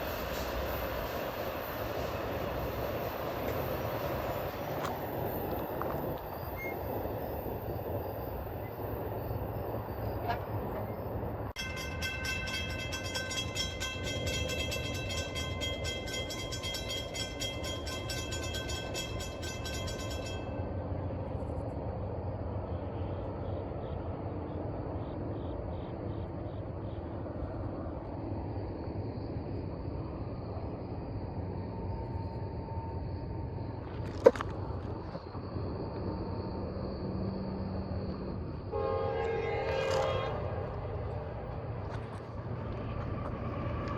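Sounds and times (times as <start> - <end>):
train cars rumbling: 0.0 - 43.9.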